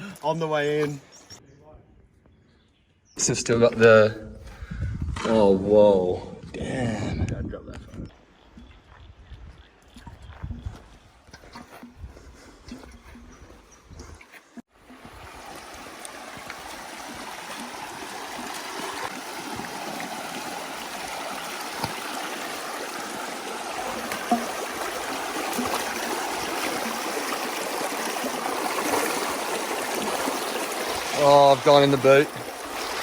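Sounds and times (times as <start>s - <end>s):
creek water gurgling: 11.4s - 33.0s.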